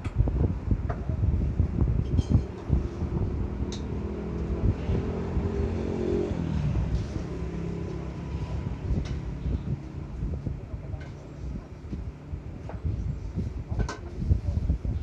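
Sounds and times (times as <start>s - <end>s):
vehicle engine running: 1.6s - 13.0s.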